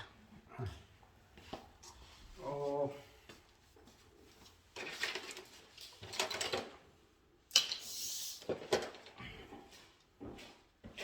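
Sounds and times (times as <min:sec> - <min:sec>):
tools rustling and clattering: 0:04.6 - 0:06.8.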